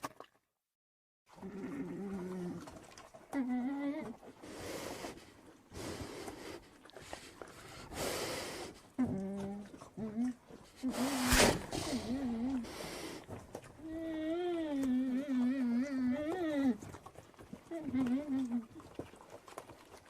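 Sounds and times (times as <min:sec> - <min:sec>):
bear breathy huffs: 0:04.4 - 0:09.0, 0:10.7 - 0:13.4
bear moaning calls: 0:13.8 - 0:16.8.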